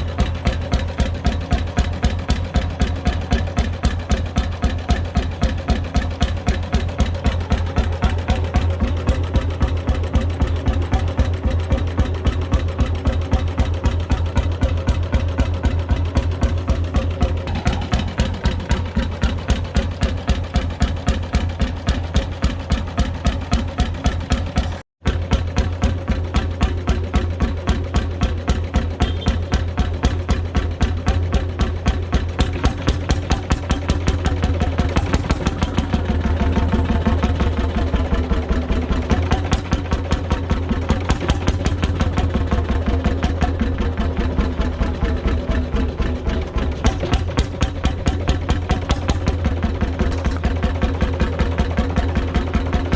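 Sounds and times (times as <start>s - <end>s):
two-stroke diesel engine running: 0.0s - 52.9s.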